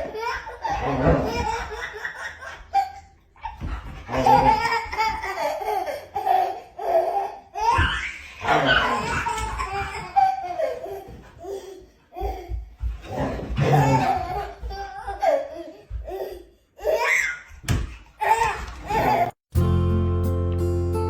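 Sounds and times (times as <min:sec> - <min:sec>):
hearty laughter: 0:00.0 - 0:03.0.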